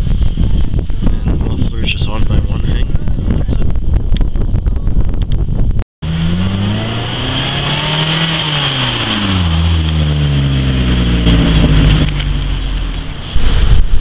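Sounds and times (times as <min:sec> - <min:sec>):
car engine revving and idling: 0:06.0 - 0:13.4.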